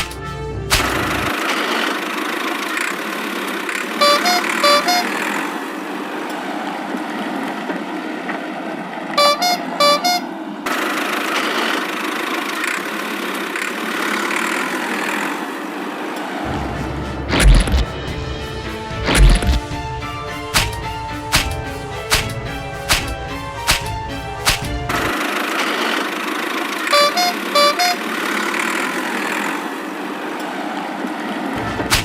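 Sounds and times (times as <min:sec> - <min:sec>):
two-tone horn tooting: 0:03.9 - 0:05.3, 0:09.2 - 0:10.4, 0:26.8 - 0:28.2.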